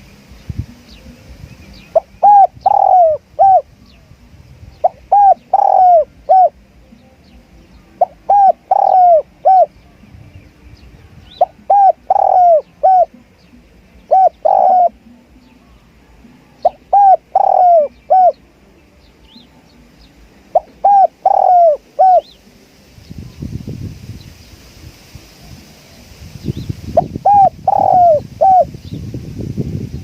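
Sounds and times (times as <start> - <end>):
dove cooing: 1.9 - 3.8, 4.8 - 6.6, 7.9 - 9.8, 11.3 - 18.4, 20.2 - 22.4, 27.0 - 28.7.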